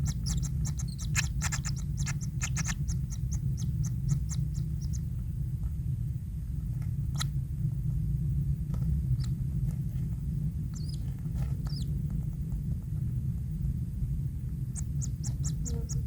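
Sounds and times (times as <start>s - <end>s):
nestlings squeaking: 0.0s - 5.1s, 9.1s - 9.4s, 10.7s - 12.0s, 14.8s - 16.0s
low rumble: 0.0s - 16.0s.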